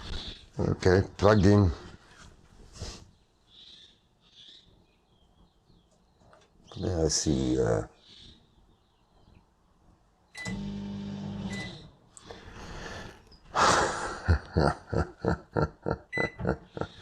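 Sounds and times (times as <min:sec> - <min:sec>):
microwave oven humming: 0:10.4 - 0:11.8.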